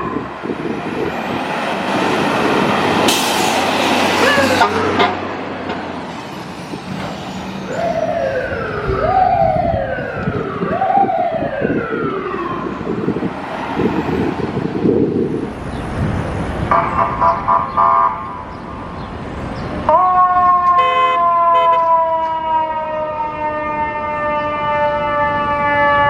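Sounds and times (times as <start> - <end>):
fire truck siren: 0.0 - 15.2, 16.7 - 18.5, 19.8 - 26.0
horn blasts: 20.7 - 22.0.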